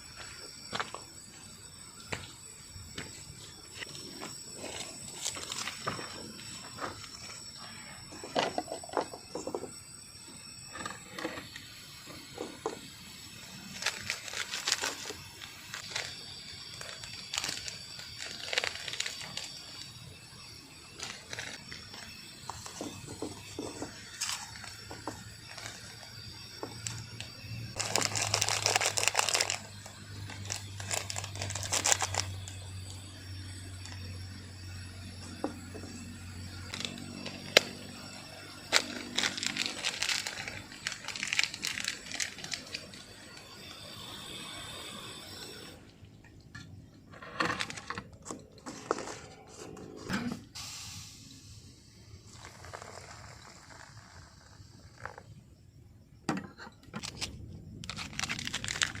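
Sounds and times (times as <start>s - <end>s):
crinkling and rustling: 38.7s - 42.9s.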